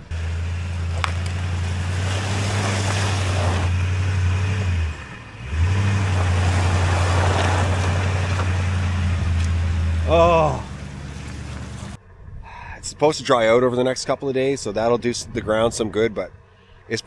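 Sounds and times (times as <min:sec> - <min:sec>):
tire spinning in mud: 0:00.0 - 0:12.0
truck engine revving: 0:00.0 - 0:12.0.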